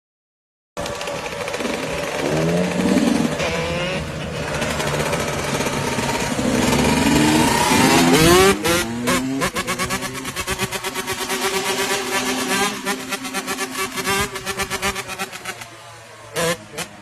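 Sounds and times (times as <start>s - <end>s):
motorcycle engines revving: 0.8s - 17.0s.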